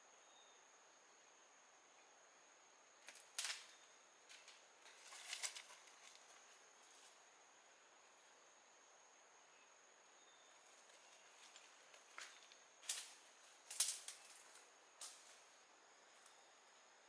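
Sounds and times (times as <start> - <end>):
high-pitched insect trill: 0.0 - 17.0
sharp clicks and cracks: 12.8 - 15.3.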